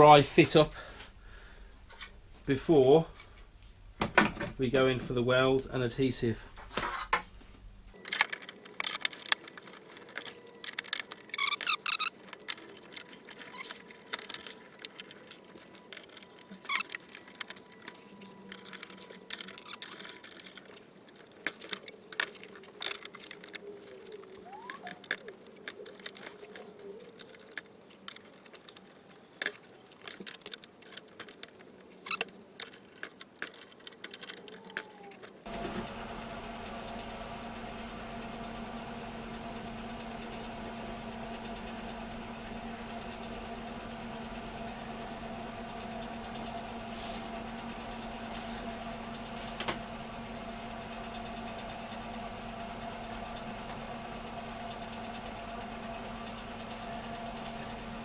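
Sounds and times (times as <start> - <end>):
metal parts and tools clinking: 8.0 - 35.4.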